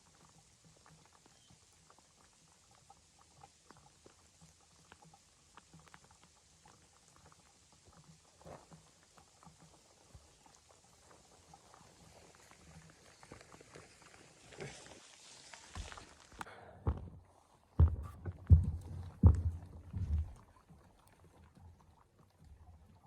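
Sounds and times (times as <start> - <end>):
small crackles and taps: 0.0 - 17.0.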